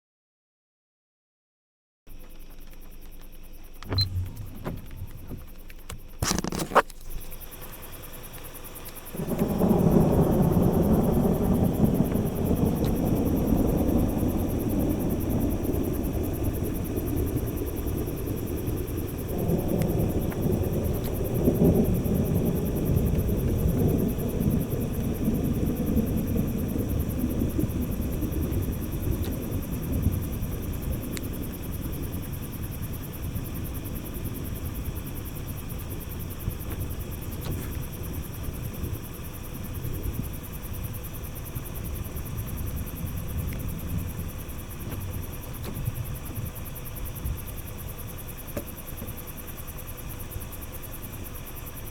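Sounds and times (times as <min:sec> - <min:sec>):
sharp click: 0:02.3 - 0:07.3
rolling thunder: 0:03.9 - 0:06.4, 0:09.1 - 0:47.6.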